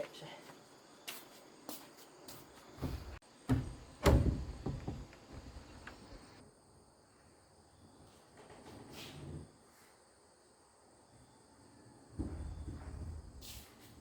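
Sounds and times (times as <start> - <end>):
dull knocks and thumps: 2.8 - 6.2.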